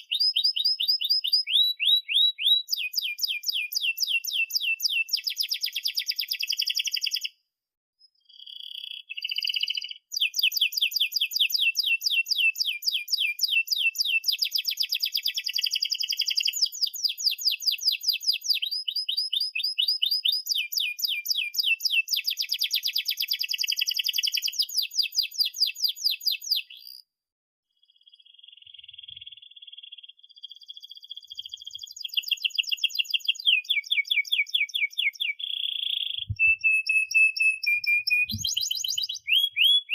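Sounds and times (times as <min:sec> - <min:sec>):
canary singing trills: 0:00.0 - 0:07.3, 0:08.0 - 0:27.0, 0:27.8 - 0:39.9.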